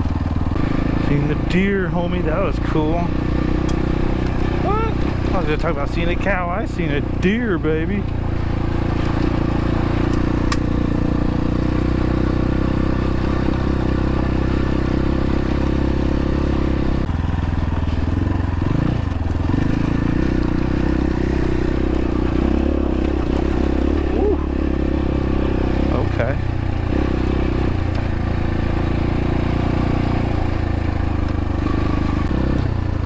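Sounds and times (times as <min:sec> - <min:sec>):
dirt bike engine running: 0:00.0 - 0:33.0.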